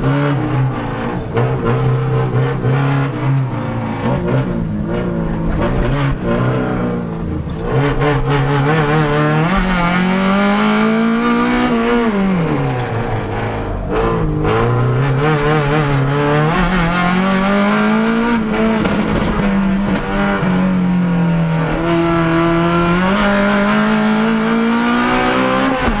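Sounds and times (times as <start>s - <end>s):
race car engine revving: 0.0s - 26.0s.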